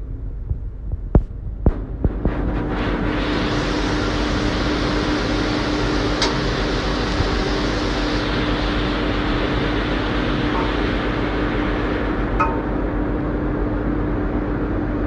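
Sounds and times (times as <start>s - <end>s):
machine humming: 0.0s - 15.0s
even hiss: 1.7s - 12.9s.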